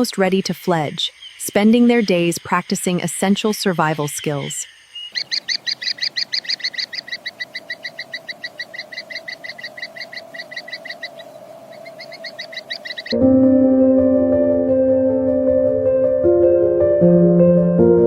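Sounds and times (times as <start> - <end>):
bird calling in rapid notes: 5.0 - 13.2.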